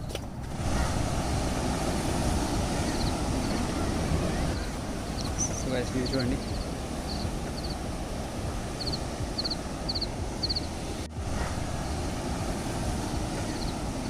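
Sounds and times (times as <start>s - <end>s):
wind rumbling on microphone: 0.0s - 14.0s
small bird chirping: 5.2s - 7.8s, 8.8s - 10.7s.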